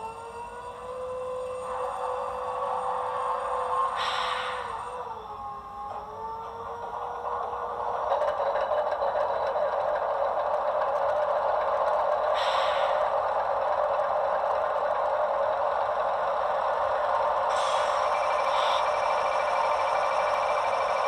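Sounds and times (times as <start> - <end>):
diesel engine sound from small speaker: 0.0 - 21.0
brief high hiss: 4.0 - 4.8, 12.4 - 13.0.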